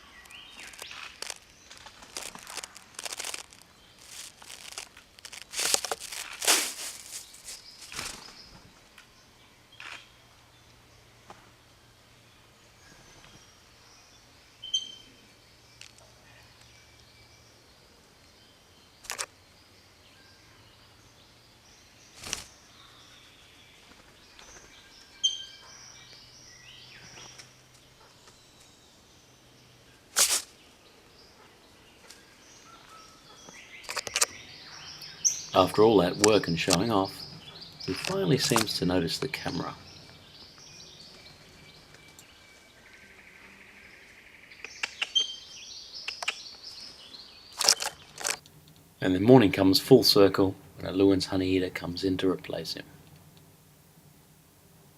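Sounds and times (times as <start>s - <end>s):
birds calling: 0.0s - 10.3s, 12.4s - 53.6s
faint bird calls: 29.9s - 48.2s.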